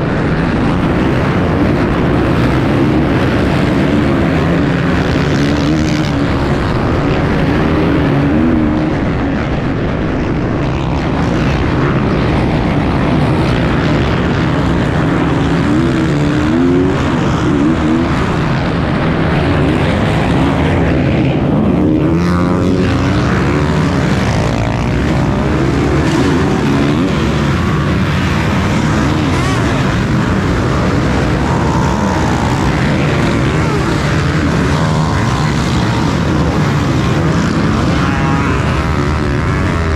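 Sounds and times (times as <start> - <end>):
motorcycle engine revving: 10.8 - 39.9.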